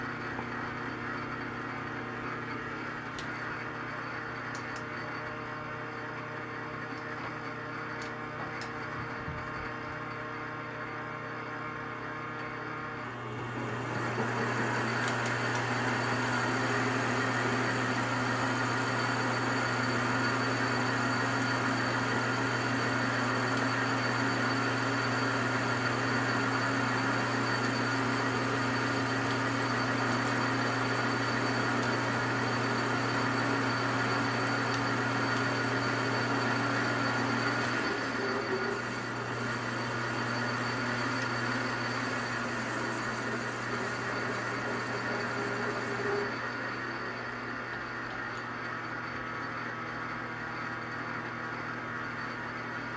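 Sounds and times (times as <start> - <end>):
metal lathe humming and whining: 12.1 - 47.8.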